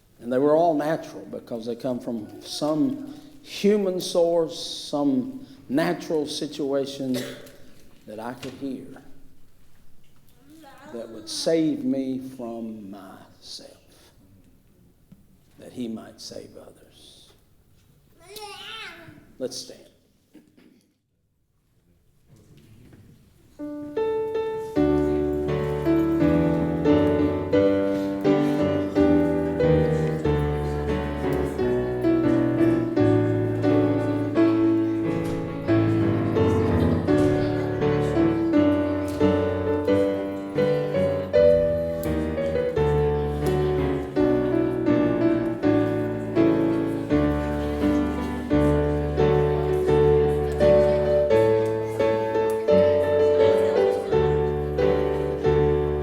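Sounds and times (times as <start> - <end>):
slow hymn-like piano piece: 23.6 - 56.0.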